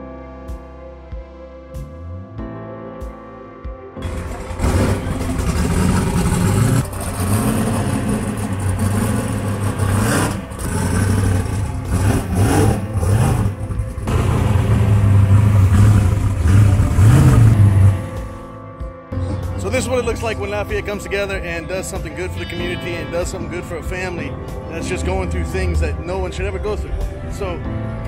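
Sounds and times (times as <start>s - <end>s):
car engine revving: 4.0s - 18.5s.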